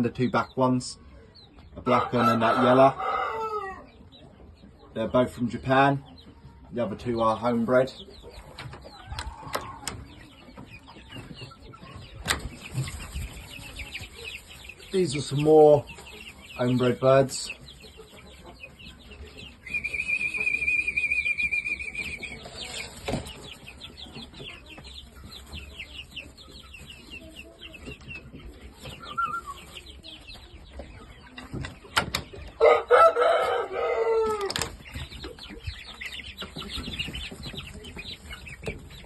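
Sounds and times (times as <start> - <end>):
chicks peeping: 0.0 - 39.0
rooster crowing: 2.3 - 3.8, 32.6 - 34.6.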